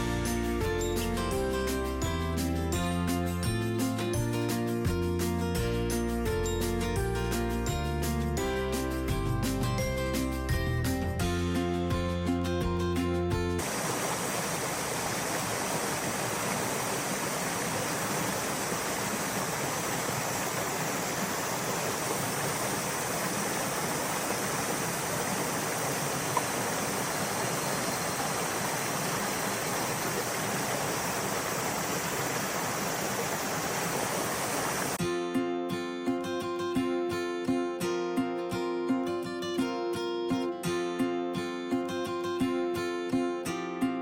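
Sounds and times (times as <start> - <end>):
waterfall pouring: 13.6 - 35.0.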